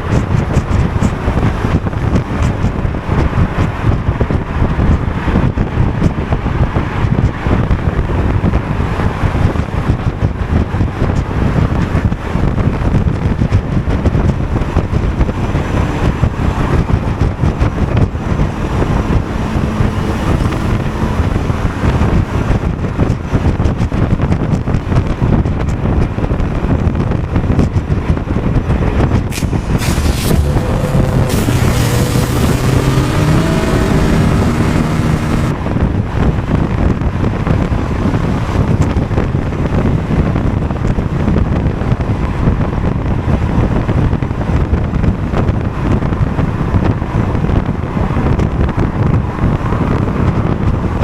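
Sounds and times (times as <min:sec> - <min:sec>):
road noise: 0:00.0 - 0:51.0
wind rush: 0:00.0 - 0:51.0
scooter engine running: 0:29.4 - 0:35.6.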